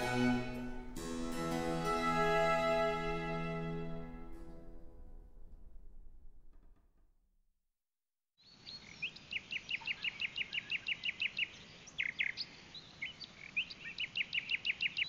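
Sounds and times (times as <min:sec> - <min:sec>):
string music: 0:00.0 - 0:06.5.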